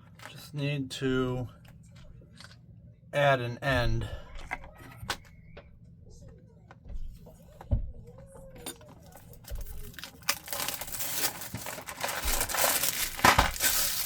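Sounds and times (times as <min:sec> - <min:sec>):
plastic packaging crinkling: 0:09.0 - 0:14.0.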